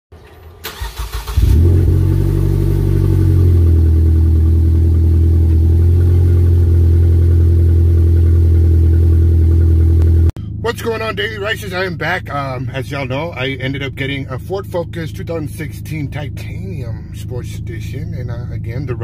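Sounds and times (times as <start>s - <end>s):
car engine idling: 0.5s - 19.0s.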